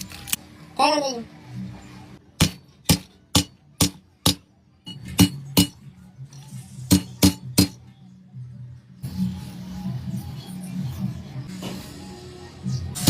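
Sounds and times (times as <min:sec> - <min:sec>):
hammer tapping on metal: 0:02.4 - 0:05.8, 0:06.9 - 0:07.8.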